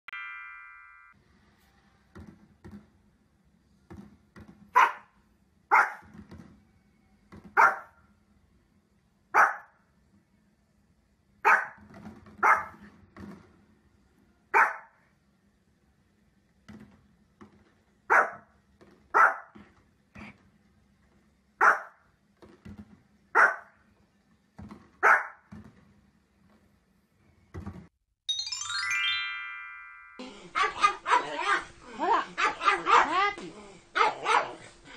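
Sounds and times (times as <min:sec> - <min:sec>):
small dog barking: 0:04.8 - 0:06.1, 0:07.6 - 0:08.0, 0:09.4 - 0:09.8, 0:11.4 - 0:11.8, 0:12.4 - 0:12.8, 0:14.5 - 0:15.0, 0:18.1 - 0:18.5, 0:19.1 - 0:19.6, 0:21.6 - 0:22.0, 0:23.4 - 0:23.7, 0:25.0 - 0:25.4, 0:30.6 - 0:34.7.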